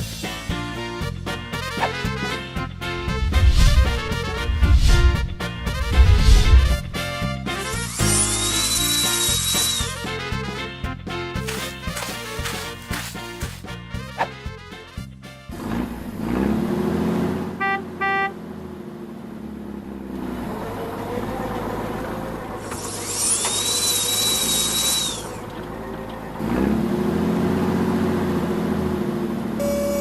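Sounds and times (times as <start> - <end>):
vehicle engine revving: 1.8 - 10.0, 15.5 - 30.0
horn beeps: 17.6 - 18.4, 29.6 - 30.0
hiss with high whine: 22.6 - 25.4.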